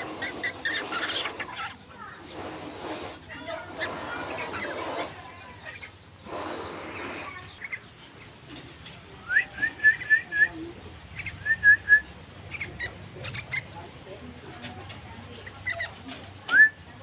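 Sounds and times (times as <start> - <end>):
bird chirping: 3.4 - 13.8.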